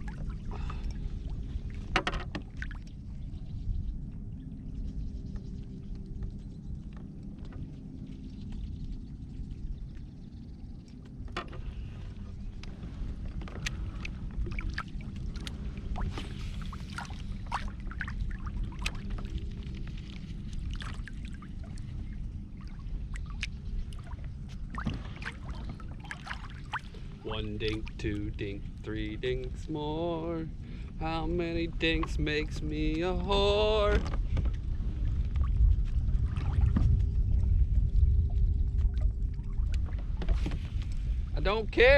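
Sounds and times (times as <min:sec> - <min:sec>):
low rumble: 0:00.0 - 0:41.9
water against hull: 0:00.0 - 0:41.9.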